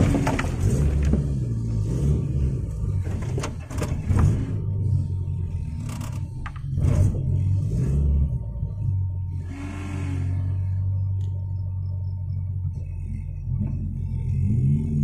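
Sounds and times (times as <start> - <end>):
knocks and scrapes from bumpy ground: 0.0 - 4.7
vehicle engine at low revs: 0.0 - 15.0.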